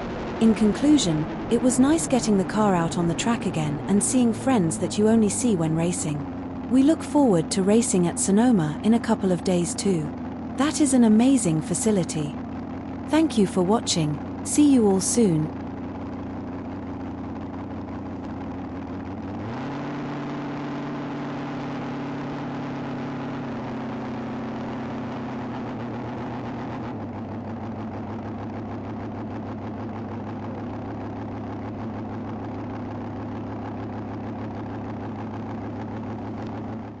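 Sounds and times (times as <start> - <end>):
dragster engine idling: 5.2 - 6.7, 10.1 - 10.6, 12.2 - 13.2, 14.1 - 14.5, 15.2 - 19.5, 25.4 - 37.0.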